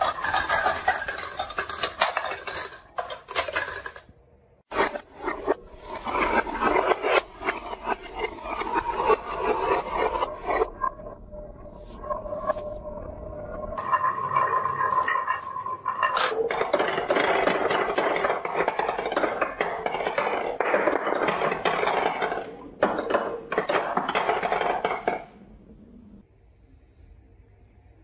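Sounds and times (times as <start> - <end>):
marbles rolling on wooden track: 0.0 - 4.1, 4.7 - 10.7, 13.8 - 25.4.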